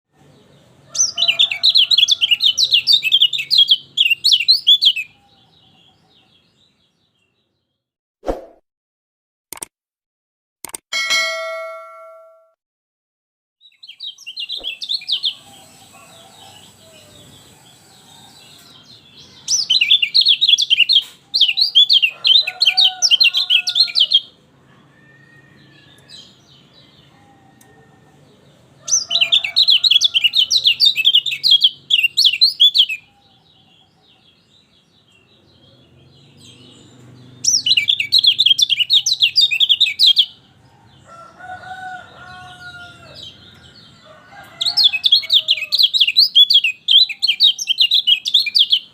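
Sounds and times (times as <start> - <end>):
bird twittering chatter: 13.7 - 17.9.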